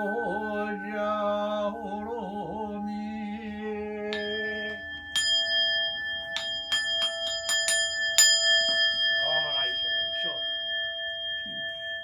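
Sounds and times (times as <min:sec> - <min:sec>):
person chanting: 0:00.0 - 0:05.0
bowl bell strikes ringing: 0:04.0 - 0:12.0.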